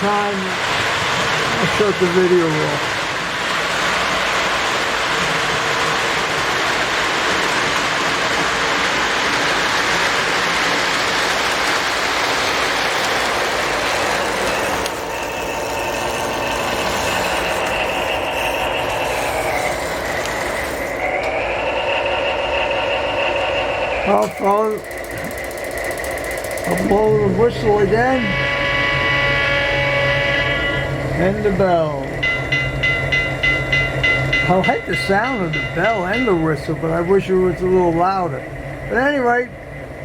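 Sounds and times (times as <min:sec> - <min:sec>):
model train rumbling on track: 0:00.0 - 0:40.0
motor whine: 0:13.5 - 0:31.1.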